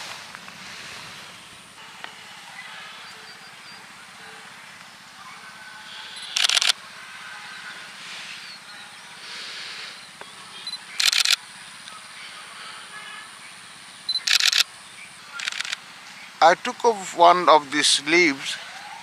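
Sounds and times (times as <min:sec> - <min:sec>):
faint outdoor background: 0:00.0 - 0:19.0
camera focus beep: 0:06.1 - 0:06.8, 0:10.6 - 0:12.0, 0:14.1 - 0:14.7, 0:15.3 - 0:15.8
camera shutter clicks: 0:06.2 - 0:06.8, 0:11.0 - 0:12.0, 0:14.1 - 0:14.7, 0:15.4 - 0:15.8.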